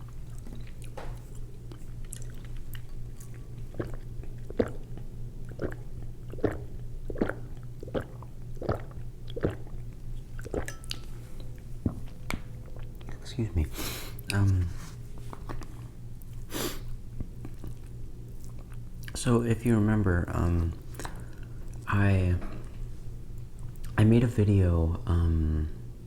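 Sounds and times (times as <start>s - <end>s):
person chewing food: 0.0s - 13.2s, 15.2s - 19.2s
steady low hum: 0.0s - 26.0s
wet mouth clicks: 1.7s - 11.0s.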